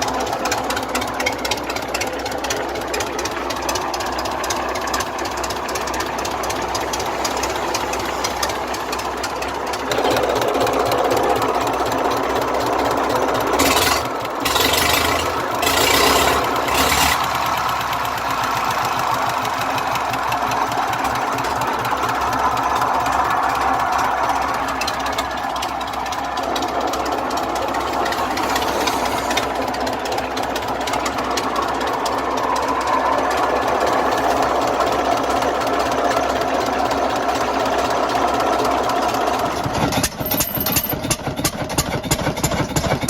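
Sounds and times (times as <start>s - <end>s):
old engine knocking: 0.0s - 43.0s
loud hissing bursts: 22.7s - 35.2s.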